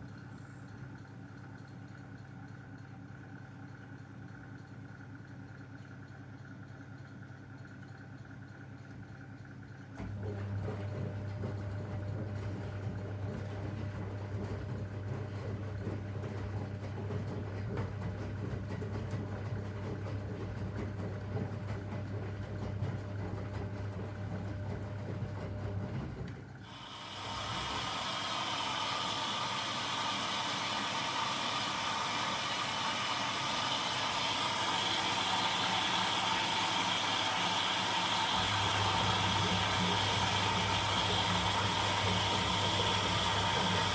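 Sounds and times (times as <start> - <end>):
washing machine low hum: 6.4 - 43.9
washing machine hissing rush: 20.8 - 43.9.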